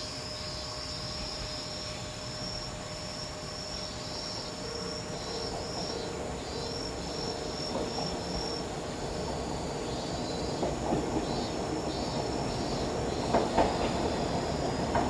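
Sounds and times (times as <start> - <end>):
insects trilling: 0.0 - 15.0
diesel railcar running: 0.1 - 15.0.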